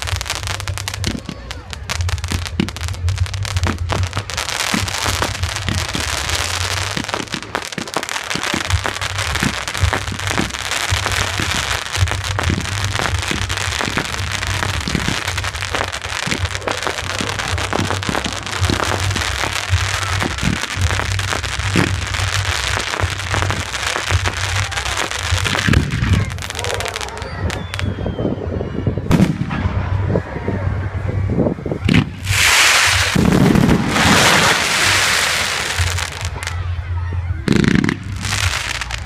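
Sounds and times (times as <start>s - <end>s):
fireworks bangs and crackling: 0.0s - 28.3s, 28.9s - 39.0s
dense hiss: 32.0s - 36.2s.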